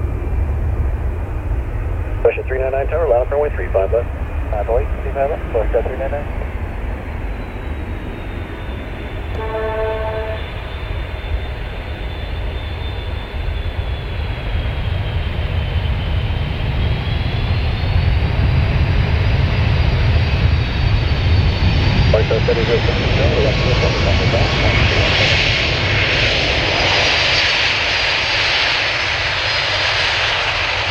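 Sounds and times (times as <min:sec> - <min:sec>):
jet engines whining: 0:00.0 - 0:30.9
short horn-like tone: 0:09.3 - 0:10.6.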